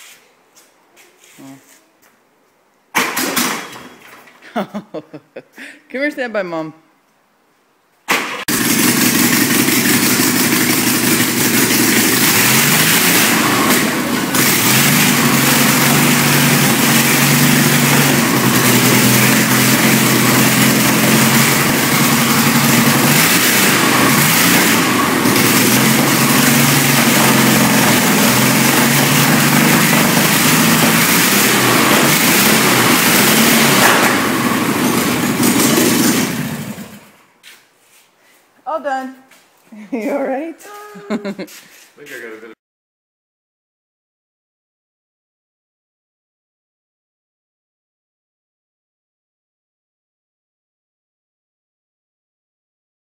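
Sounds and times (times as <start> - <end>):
loud engine revving: 8.5 - 37.2.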